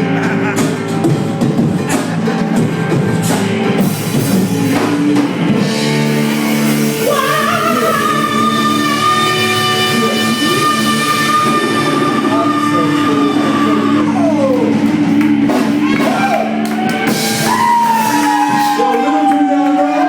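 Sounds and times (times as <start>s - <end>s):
bass guitar: 0.0s - 20.0s
drum kit: 0.0s - 20.0s
electric guitar: 0.0s - 20.0s
person singing: 6.8s - 16.5s.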